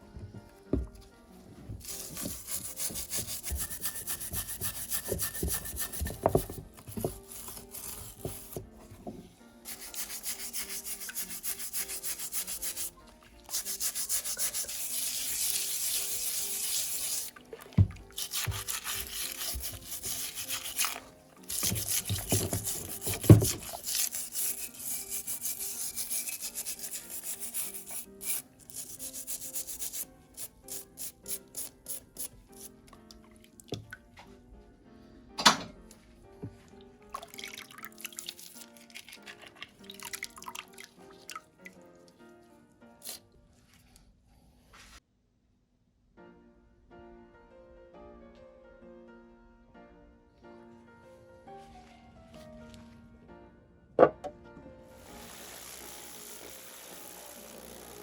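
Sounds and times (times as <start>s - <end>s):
hand rubbing on a workpiece: 1.8s - 17.3s, 18.2s - 21.0s, 21.6s - 32.8s.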